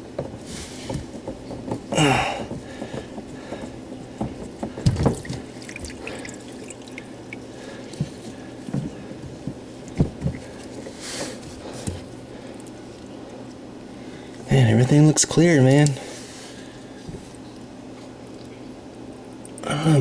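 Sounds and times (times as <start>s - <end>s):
hose fittings knocking: 0.0s - 6.0s
water dripping and trickling: 4.6s - 8.8s.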